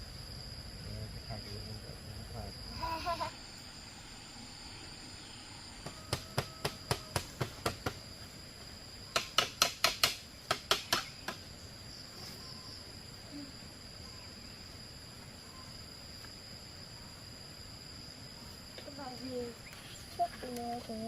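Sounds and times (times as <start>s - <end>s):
high insect trill: 0.0s - 21.0s.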